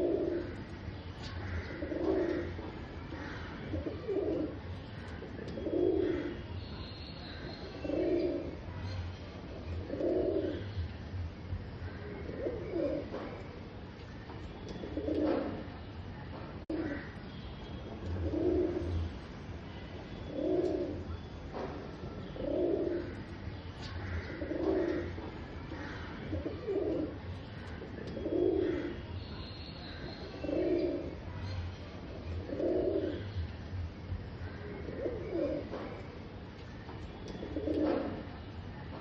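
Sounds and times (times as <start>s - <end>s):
pigeon cooing: 0.0s - 0.6s, 1.5s - 2.7s, 3.6s - 6.4s, 7.6s - 8.7s, 9.7s - 10.7s, 12.2s - 13.4s, 14.7s - 15.7s, 18.2s - 19.0s, 20.3s - 21.1s, 22.4s - 23.3s, 24.3s - 27.2s, 27.8s - 29.0s, 30.3s - 31.3s, 32.1s - 33.3s, 34.8s - 36.1s, 37.3s - 38.2s.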